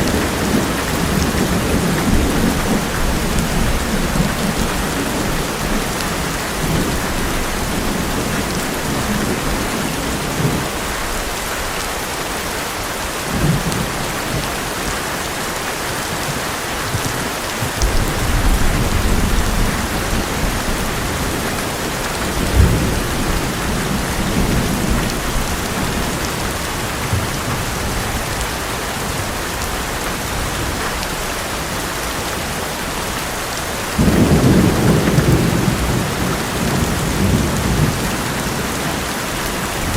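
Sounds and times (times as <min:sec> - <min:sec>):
thunder rumbling: 0:00.0 - 0:11.3, 0:16.3 - 0:31.8, 0:33.9 - 0:39.9
heavy rain on metal roof: 0:00.0 - 0:39.9
sharp thunder crack: 0:34.0 - 0:38.2.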